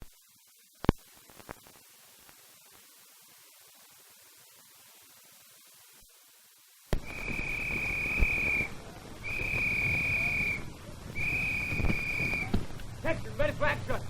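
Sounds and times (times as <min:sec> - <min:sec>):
high steady tone blasts: 0:06.9 - 0:13.9.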